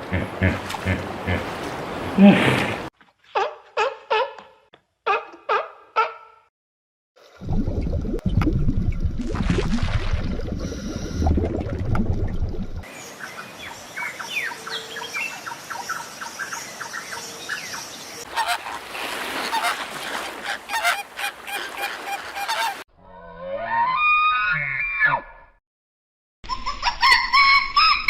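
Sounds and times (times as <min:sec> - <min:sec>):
geese calling: 0:18.3 - 0:22.8.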